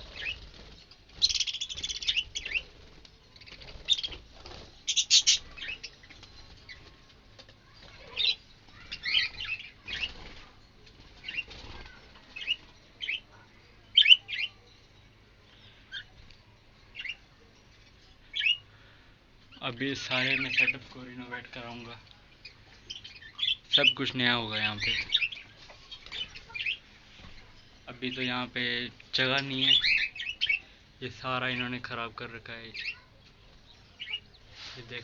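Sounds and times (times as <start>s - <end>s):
budgerigars chirping: 0.0s - 7.0s, 8.0s - 10.4s, 11.2s - 14.6s, 18.3s - 18.8s, 19.5s - 33.1s, 33.7s - 35.0s
wing flapping: 0.0s - 13.2s.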